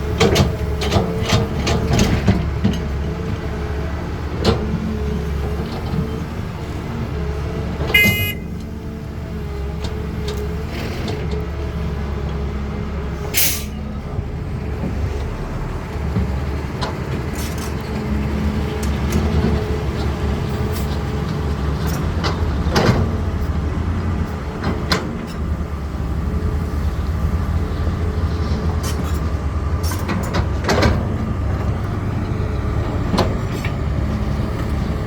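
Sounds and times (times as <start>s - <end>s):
excavator diesel engine running: 0.0s - 35.0s
metal clanks and knocks: 28.8s - 31.7s.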